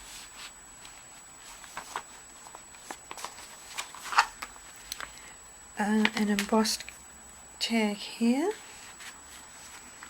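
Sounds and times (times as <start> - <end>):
paper pages rustling: 0.0 - 5.1, 8.5 - 10.0.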